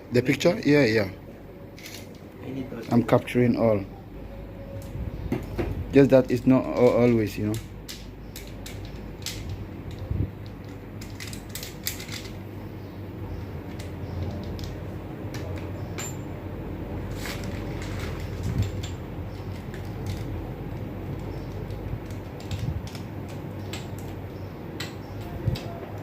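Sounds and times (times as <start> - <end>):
steady low hum: 0.0 - 26.0
metal tools clinking: 15.8 - 16.4.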